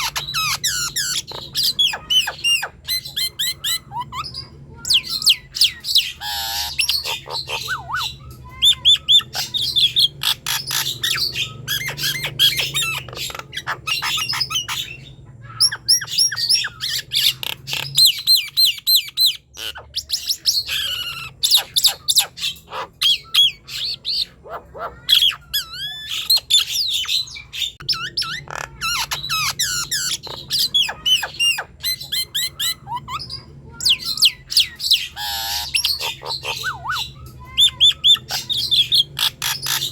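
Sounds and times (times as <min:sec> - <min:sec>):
bird singing whistles and squawks: 0:00.0 - 0:39.9.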